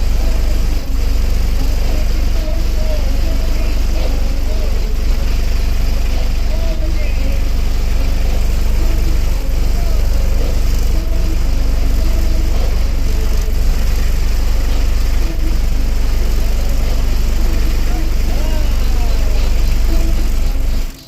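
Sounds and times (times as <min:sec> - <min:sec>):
subwoofer deep bass rumble: 0:00.0 - 0:21.0.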